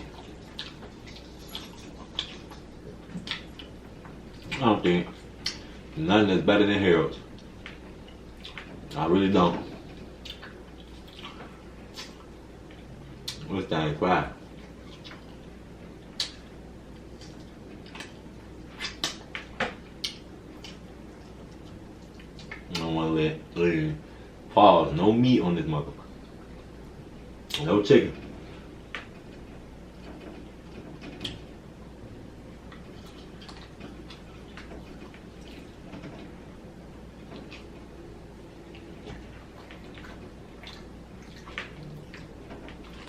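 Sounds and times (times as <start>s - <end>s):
person chewing and smacking: 0.0s - 6.0s, 7.3s - 8.9s, 9.7s - 13.5s, 14.6s - 22.9s, 32.6s - 35.8s, 37.1s - 37.9s, 38.6s - 43.0s.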